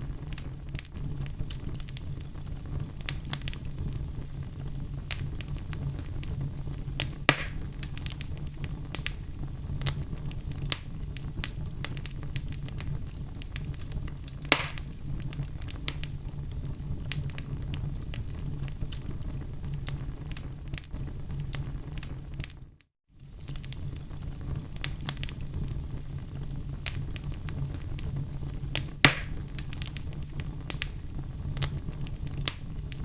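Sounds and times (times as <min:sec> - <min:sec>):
fire crackling and popping: 0:00.0 - 0:33.0
fire rumbling: 0:00.0 - 0:33.0.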